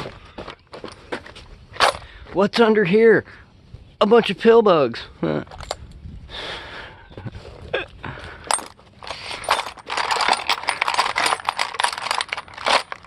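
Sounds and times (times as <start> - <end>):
small metal pieces clinking: 8.5 - 13.0.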